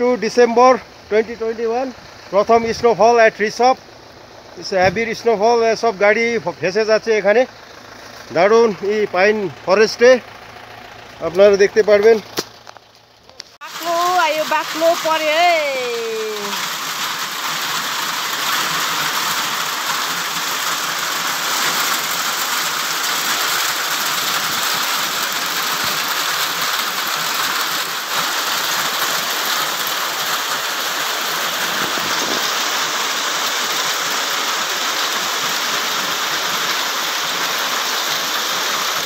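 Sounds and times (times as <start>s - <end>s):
heavy rain on wet terrace: 0.0s - 4.8s, 13.4s - 39.0s.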